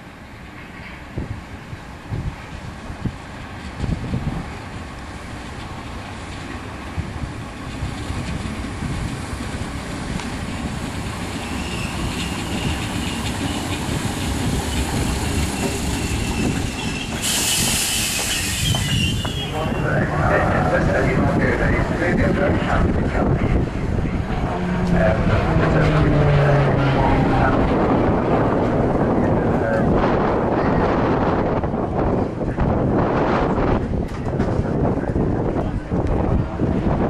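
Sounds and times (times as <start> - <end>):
electric train rumbling on rails: 0.0 - 37.0
wheel squeal: 11.3 - 13.6, 15.4 - 19.6
short sharp hiss: 17.2 - 19.0.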